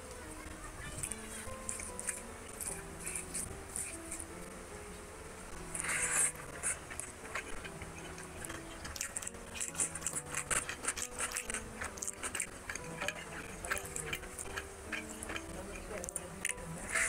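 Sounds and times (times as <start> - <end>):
soft background music: 0.0 - 17.0
man eating wet mouthfuls: 5.7 - 17.0
crunching raw onion: 5.8 - 17.0.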